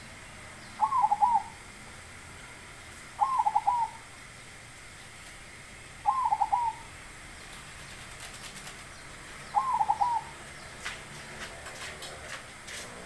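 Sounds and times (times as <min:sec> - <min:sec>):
dove cooing: 0:00.8 - 0:01.6, 0:03.2 - 0:04.0, 0:06.0 - 0:06.9, 0:09.4 - 0:10.5.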